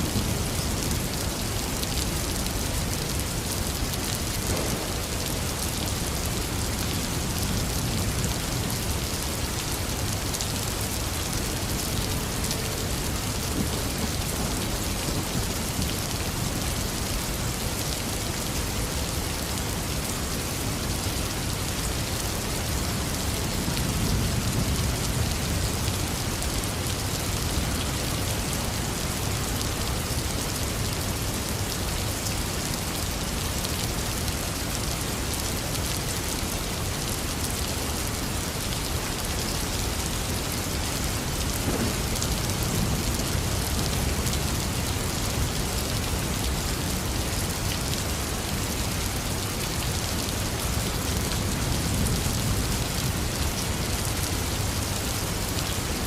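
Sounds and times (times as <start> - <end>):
heavy rain falling: 0.0 - 56.0
low rumbles of thunder: 4.3 - 9.0.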